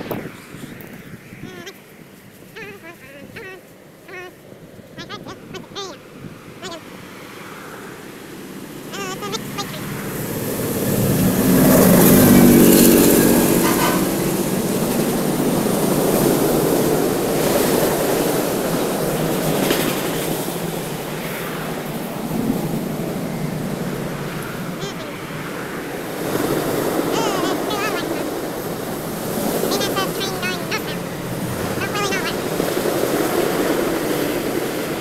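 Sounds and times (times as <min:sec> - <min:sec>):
freight cars rolling by: 0:07.7 - 0:35.0
diesel locomotive engine: 0:08.0 - 0:35.0.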